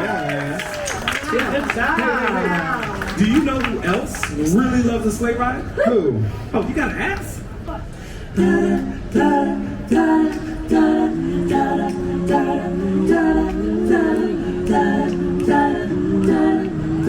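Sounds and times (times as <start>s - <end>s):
a cappella harmony singing: 7.9s - 17.0s.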